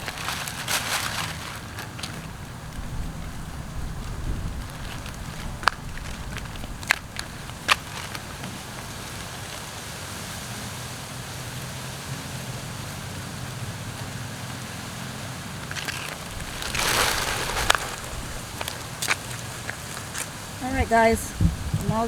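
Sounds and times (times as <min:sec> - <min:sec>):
mulch rustling: 0:00.0 - 0:02.8, 0:15.5 - 0:20.6
mulch pouring: 0:15.6 - 0:20.1.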